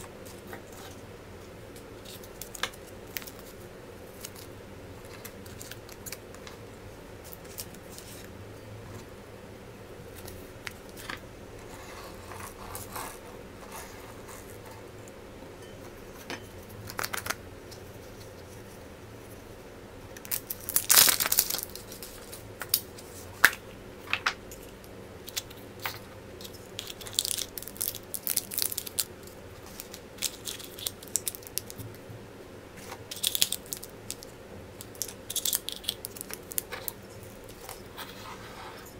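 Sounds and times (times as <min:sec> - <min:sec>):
wrappers crinkling and tearing: 0:20.3 - 0:22.8, 0:26.4 - 0:31.8, 0:33.0 - 0:37.9.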